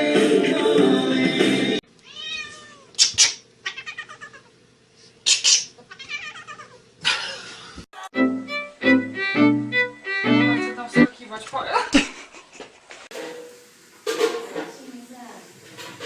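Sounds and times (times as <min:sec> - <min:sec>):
cat meowing: 0:02.0 - 0:03.0, 0:03.6 - 0:04.5, 0:05.9 - 0:06.8.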